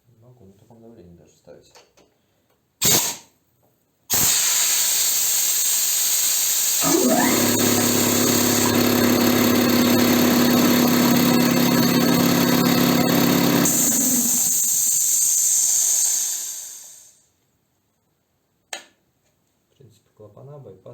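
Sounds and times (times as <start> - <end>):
compressed air hissing: 4.1 - 6.8, 13.7 - 17.2
compressor motor whine and hum: 6.2 - 17.1.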